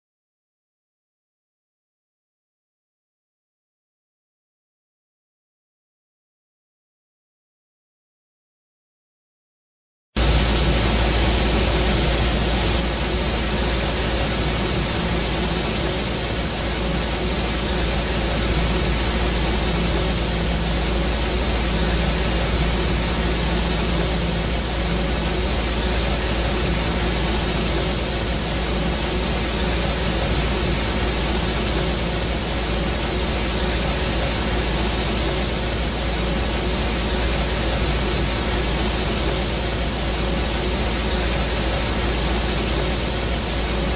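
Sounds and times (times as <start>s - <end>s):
faint steady tones: 10.2s - 41.2s
low machine hum: 10.2s - 43.9s
milling hiss: 10.2s - 43.9s.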